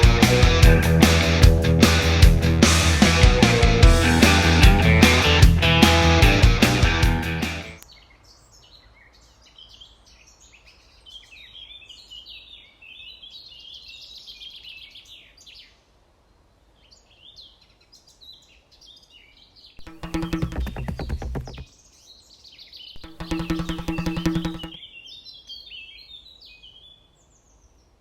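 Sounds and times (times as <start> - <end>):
small birds singing: 7.8 - 15.9, 16.6 - 19.9, 21.7 - 28.0.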